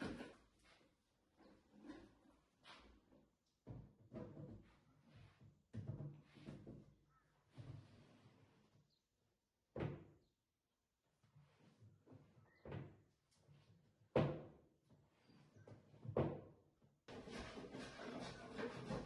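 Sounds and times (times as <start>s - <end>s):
drawer sliding scrapes: 17.1s - 19.0s.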